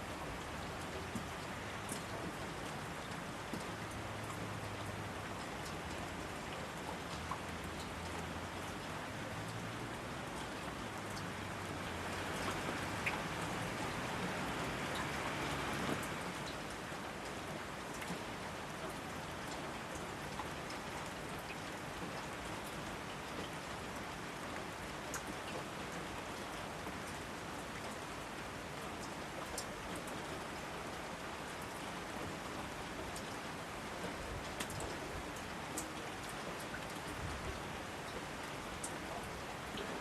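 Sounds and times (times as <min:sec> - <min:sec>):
raindrops striking: 0:00.3 - 0:22.4, 0:32.9 - 0:37.1.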